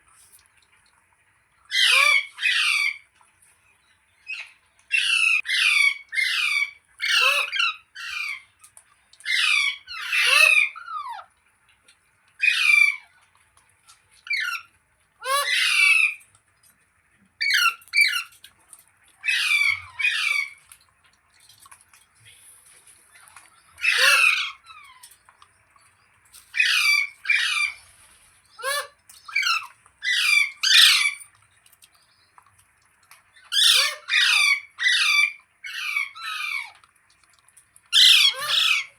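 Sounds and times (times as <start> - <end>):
parrot squawking: 1.7 - 3.0, 4.3 - 8.4, 9.2 - 11.3, 12.4 - 13.1, 14.2 - 16.2, 17.4 - 18.4, 19.2 - 20.6, 23.1 - 25.1, 26.5 - 27.8, 28.5 - 31.3, 33.4 - 36.8, 37.9 - 38.9.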